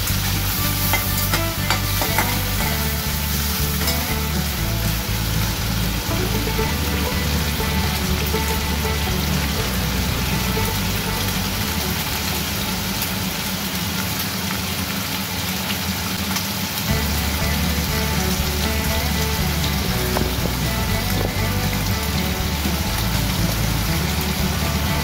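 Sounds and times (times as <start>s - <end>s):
meat sizzling in oil: 0.0s - 5.6s
background music: 0.0s - 13.2s, 16.9s - 25.0s.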